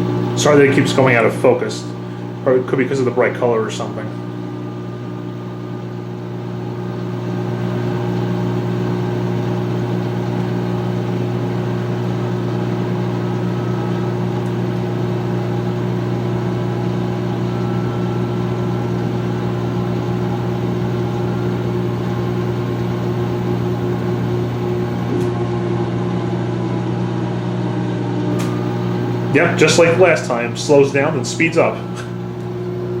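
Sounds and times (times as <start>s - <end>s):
washing machine drum spinning: 7.2s - 27.3s, 28.3s - 33.0s.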